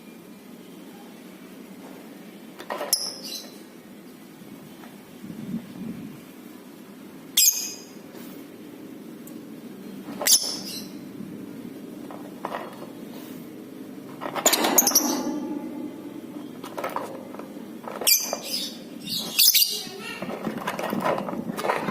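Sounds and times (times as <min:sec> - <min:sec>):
bird chirping: 0:17.8 - 0:20.0.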